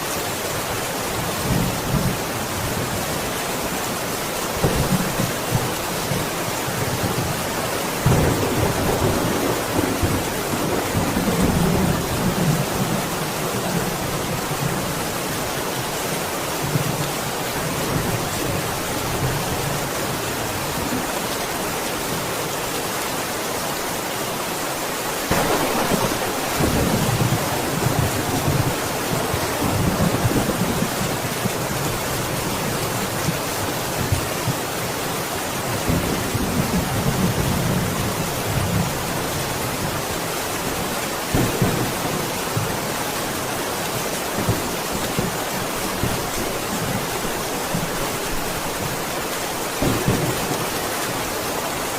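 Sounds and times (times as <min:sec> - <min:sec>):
heavy rain: 0:00.0 - 0:51.9
thunder rumbling: 0:08.0 - 0:15.1, 0:25.3 - 0:32.5, 0:41.3 - 0:42.8, 0:49.7 - 0:51.4.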